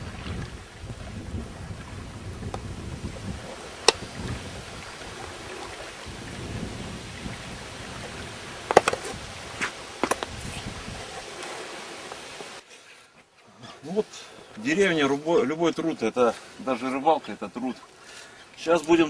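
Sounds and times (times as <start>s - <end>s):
wind rumbling on microphone: 0.0s - 12.6s
sharp knocks: 8.7s - 9.1s.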